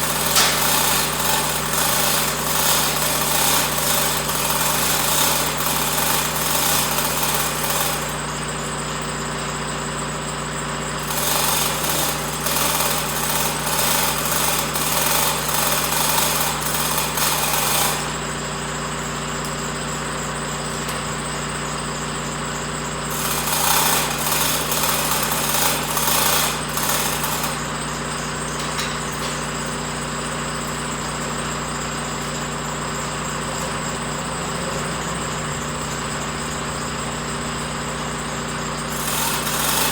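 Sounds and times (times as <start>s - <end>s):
engine running: 18.8s - 39.9s.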